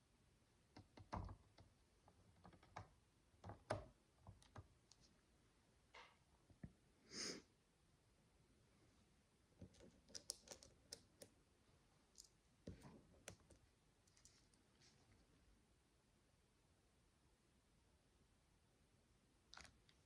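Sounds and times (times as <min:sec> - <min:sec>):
soft rustle: 0:11.9 - 0:15.5.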